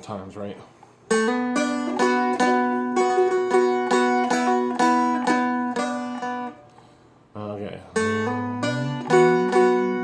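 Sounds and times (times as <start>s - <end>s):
plucked dulcimer melody: 1.1s - 6.6s, 8.0s - 10.0s
drone string ringing: 8.0s - 10.0s.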